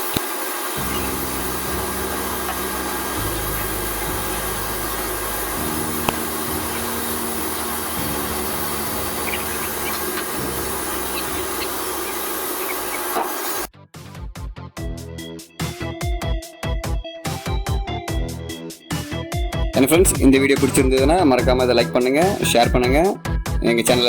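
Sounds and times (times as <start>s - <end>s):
aircraft engine roar: 0.0s - 13.7s
low hum shifting in pitch: 0.7s - 13.7s.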